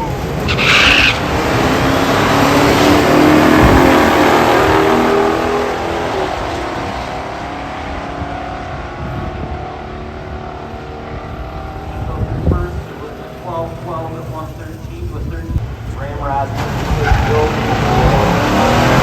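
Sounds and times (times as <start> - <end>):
car engine accelerating hard: 0.0 - 14.5, 15.5 - 19.0.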